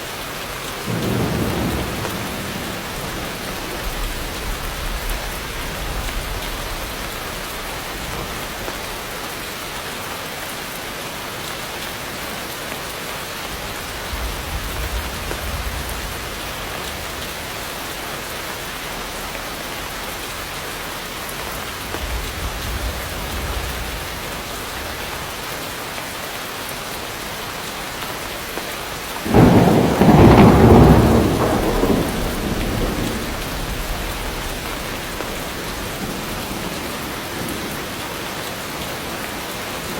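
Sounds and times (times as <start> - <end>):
heavy rainfall: 0.0 - 39.9
distant thunder rumbles: 0.8 - 9.1, 13.5 - 17.7, 21.5 - 25.4, 29.2 - 38.2
loud thunderclap: 0.9 - 8.7, 13.8 - 17.5, 21.8 - 25.0, 29.2 - 37.8.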